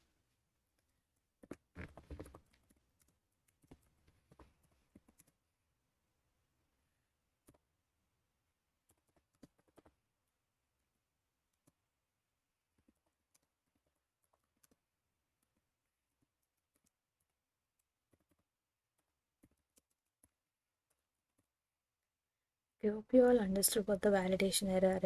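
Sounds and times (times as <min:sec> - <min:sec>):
keyboard and mouse clicks: 0:00.8 - 0:05.4, 0:07.4 - 0:07.7, 0:08.8 - 0:10.0, 0:11.5 - 0:11.8, 0:12.7 - 0:21.5.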